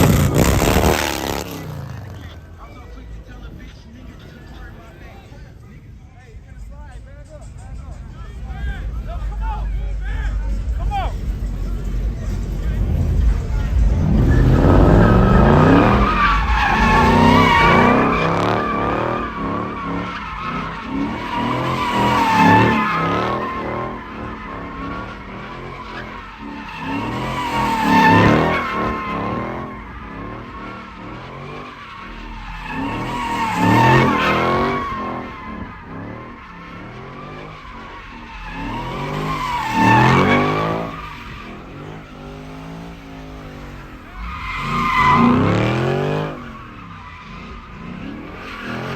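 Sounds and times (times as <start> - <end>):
car engine running: 0.0 - 48.9
tyres squealing: 13.4 - 48.9.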